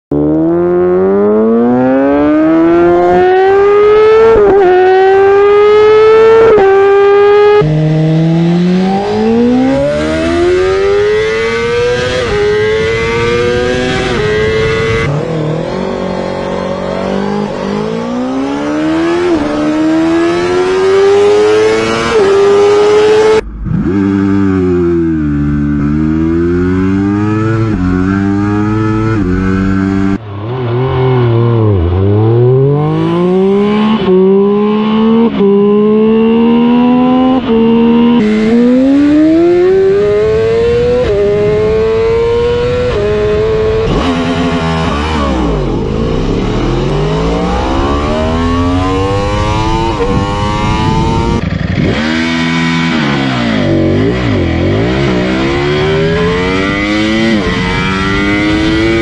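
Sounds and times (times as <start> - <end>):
motorcycle engines accelerating: 0.1 - 59.0
motorcycles passing by: 41.4 - 59.0.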